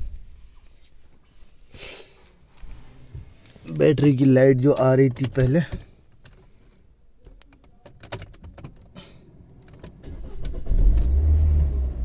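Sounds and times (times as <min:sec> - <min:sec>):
diesel engine starting and idling: 0:09.8 - 0:12.0.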